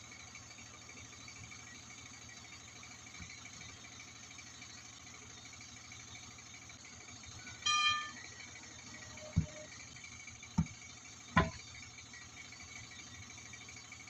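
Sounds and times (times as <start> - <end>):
short high-pitched beep: 7.6 - 8.3
knocks: 11.4 - 11.6.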